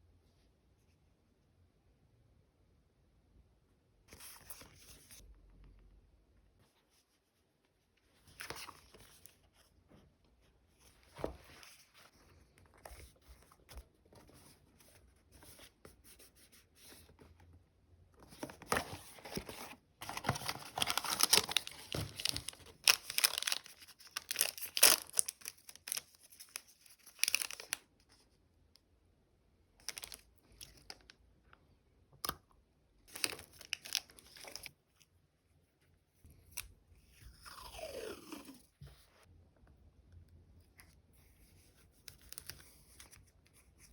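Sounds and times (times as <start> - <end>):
plastic packaging crinkling: 18.6 - 27.8, 29.8 - 31.1.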